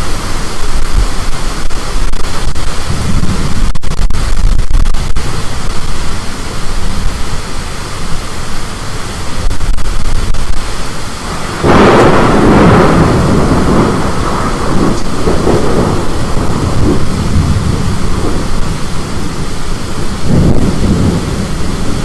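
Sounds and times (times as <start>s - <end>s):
thunder clap: 0.0s - 8.3s, 9.4s - 22.0s
storm wind rumble: 0.0s - 22.0s.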